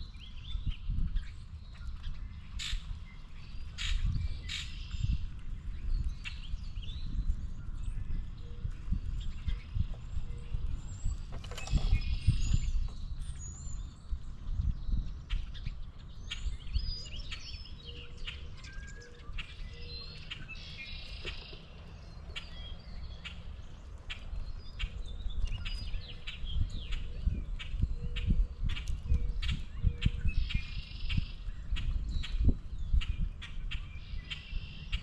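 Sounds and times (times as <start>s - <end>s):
low rumble with thumps: 0.0s - 17.0s
birds chirping and calling: 0.0s - 35.0s.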